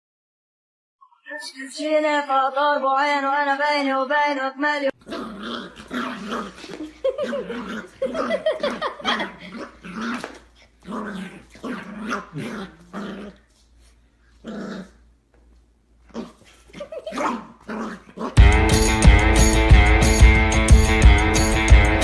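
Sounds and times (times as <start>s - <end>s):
dog growling and barking: 5.0s - 13.5s, 14.4s - 15.1s, 16.1s - 19.0s.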